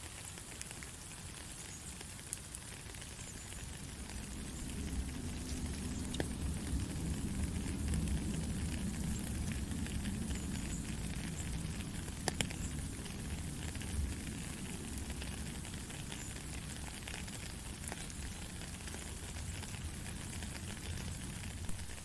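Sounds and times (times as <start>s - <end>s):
heavy rain falling: 0.5s - 22.0s.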